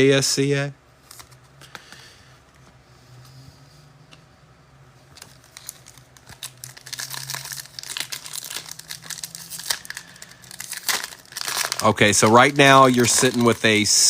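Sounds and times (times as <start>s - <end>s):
foil wrapper crinkling and tearing: 5.2s - 14.0s.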